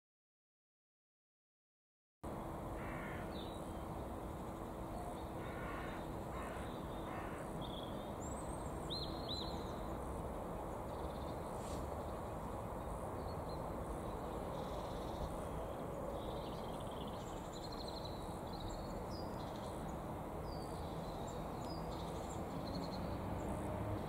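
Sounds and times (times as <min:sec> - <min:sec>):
low background noise: 0:02.3 - 0:24.0
small birds chirping: 0:10.7 - 0:24.0.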